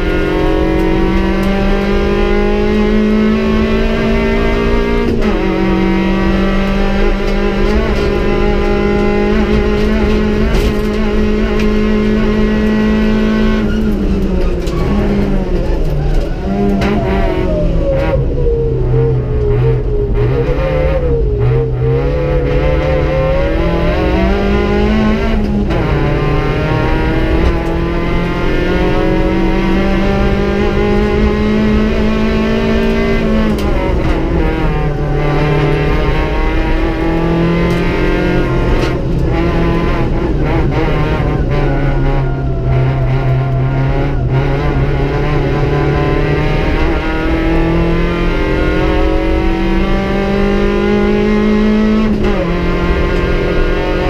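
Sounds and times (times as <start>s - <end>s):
car engine at high revs: 0.0s - 54.0s.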